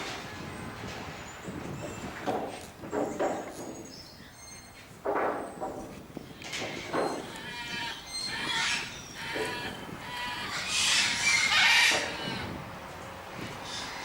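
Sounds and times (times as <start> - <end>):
chickens calling: 6.2 - 14.0
harsh chicken call: 8.3 - 12.5.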